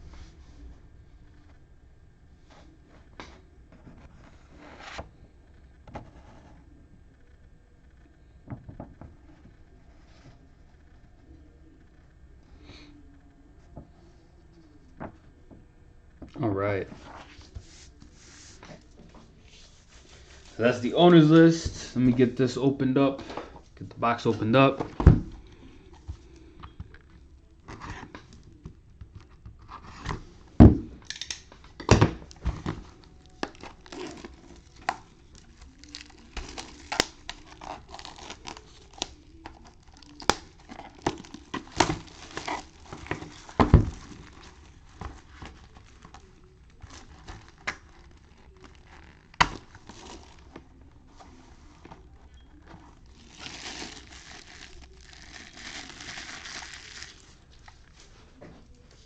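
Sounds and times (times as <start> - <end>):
plastic shrink wrap tearing: 32.2 - 51.2, 52.2 - 57.9.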